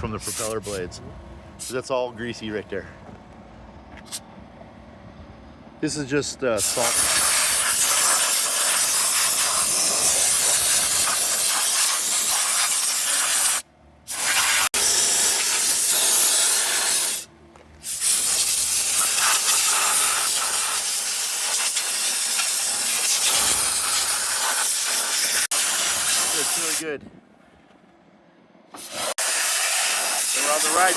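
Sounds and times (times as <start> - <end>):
pressure spray hissing: 6.6 - 26.9, 28.8 - 30.9.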